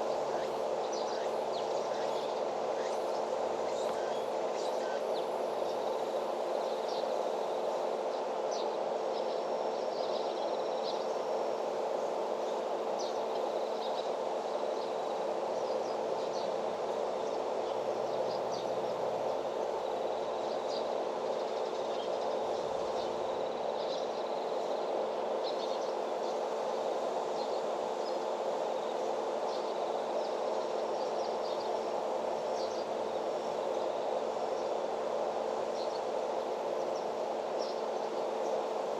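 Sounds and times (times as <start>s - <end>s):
steady hum: 0.0s - 38.9s.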